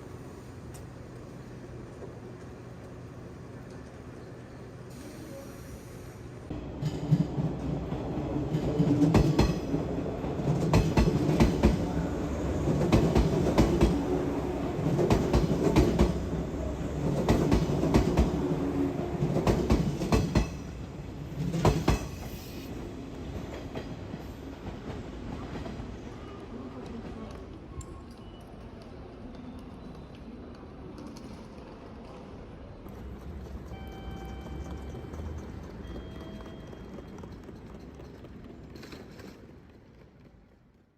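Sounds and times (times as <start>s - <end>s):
train rumbling on rails: 0.0s - 27.8s, 28.7s - 40.9s
wheels clacking over rail joints: 32.9s - 40.8s.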